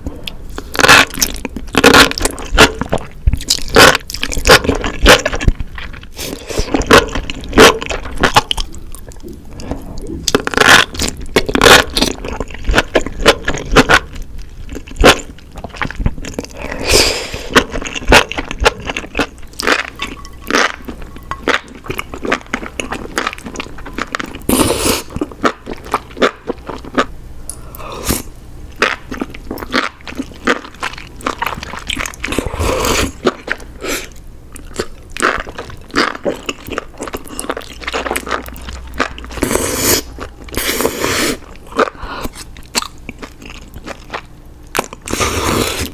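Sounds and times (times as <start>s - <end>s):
wet chewing and biting clicks: 0.6s - 9.4s, 17.5s - 27.1s, 28.7s - 40.7s, 41.4s - 45.2s.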